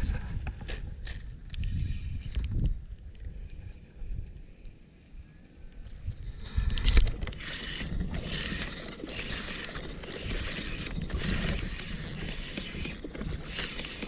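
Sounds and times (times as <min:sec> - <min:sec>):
fishing reel whirring: 0:06.8 - 0:14.0.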